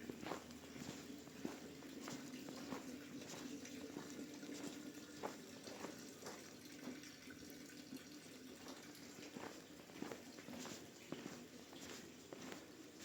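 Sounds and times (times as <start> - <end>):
footsteps in snow: 0.0 - 6.0, 9.3 - 13.0
low background noise: 0.0 - 13.0.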